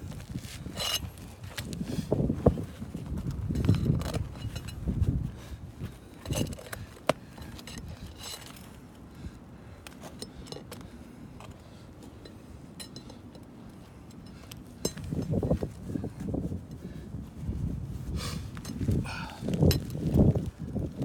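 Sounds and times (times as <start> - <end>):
tool clinks and taps: 3.5 - 4.8, 6.2 - 8.7, 9.9 - 13.5, 14.1 - 15.6, 19.5 - 20.1.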